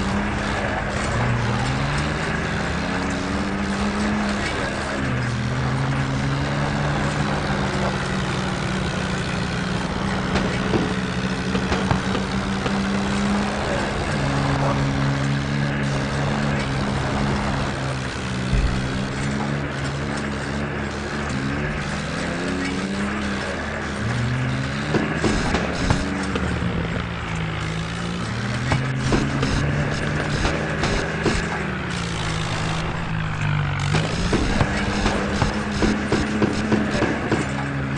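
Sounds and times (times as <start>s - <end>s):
tractor diesel engine running: 0.0s - 37.9s.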